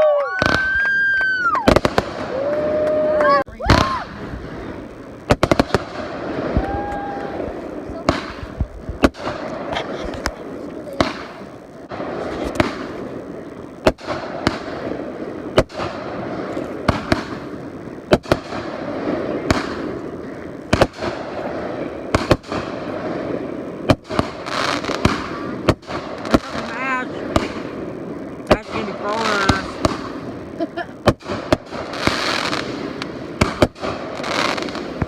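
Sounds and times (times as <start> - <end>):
fireworks bursting bangs: 0.0 - 35.0
steady background noise: 1.4 - 35.0.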